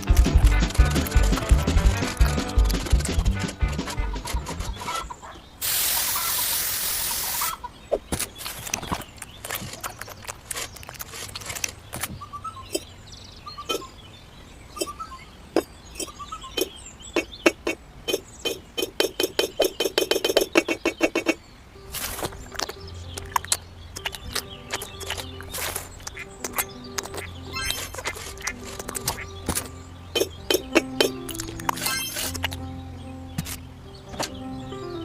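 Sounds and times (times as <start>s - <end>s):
hissing noise: 5.6s - 7.6s.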